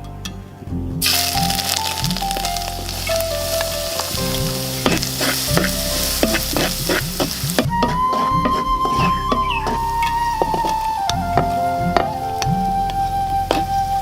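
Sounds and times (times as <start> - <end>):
food sizzling in a hot pan: 1.0 - 10.7.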